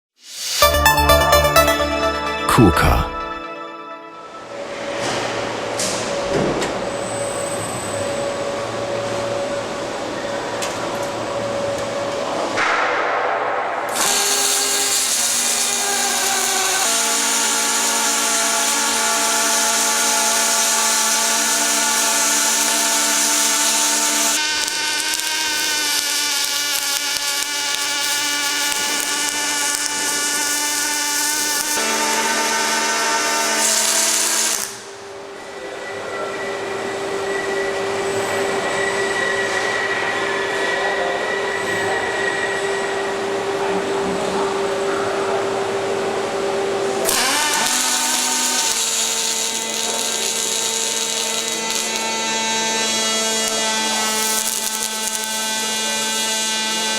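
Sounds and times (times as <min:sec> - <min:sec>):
hiss: 0:00.2 - 0:00.6.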